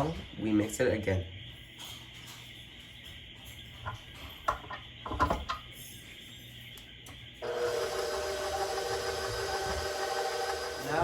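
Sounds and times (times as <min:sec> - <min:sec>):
electric mixer running: 0:07.4 - 0:11.0.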